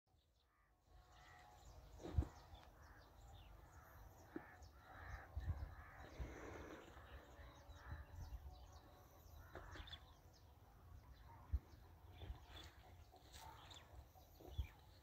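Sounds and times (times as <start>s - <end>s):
faint bird calls: 0.4s - 10.3s.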